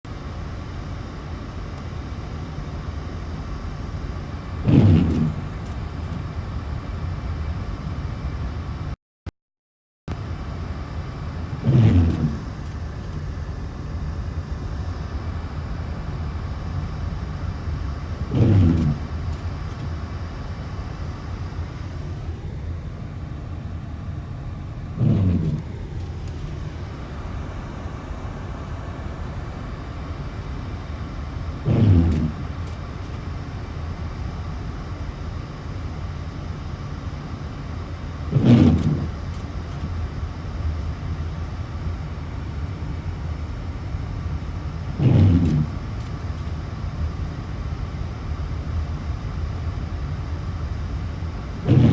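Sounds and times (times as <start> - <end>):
vehicle low rumble: 0.1 - 9.0, 10.1 - 51.9.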